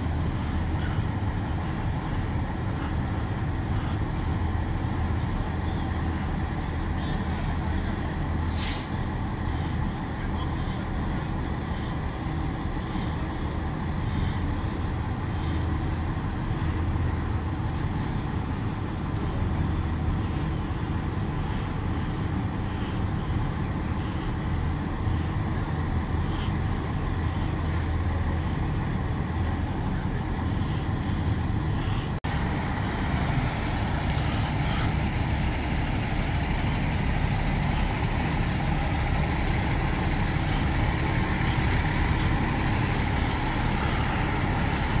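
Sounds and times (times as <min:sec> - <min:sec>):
heavy vehicle engines running: 0:00.0 - 0:45.0
street noise: 0:00.0 - 0:45.0
hiss: 0:08.4 - 0:09.1.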